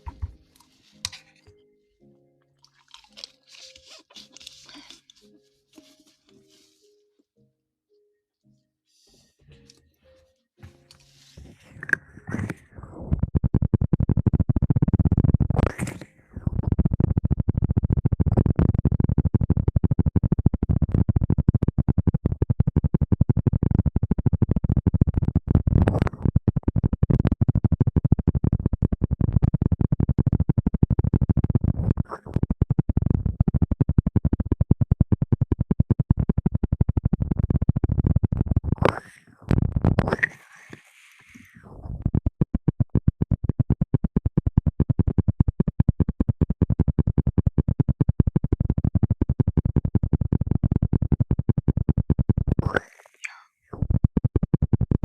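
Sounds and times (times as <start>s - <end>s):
rubbing against microphone: 3.3s - 6.9s, 11.0s - 17.4s, 37.2s - 43.7s.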